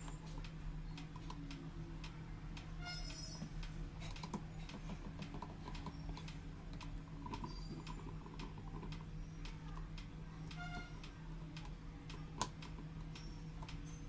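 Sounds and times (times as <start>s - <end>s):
light clicks and taps: 0.0s - 14.0s.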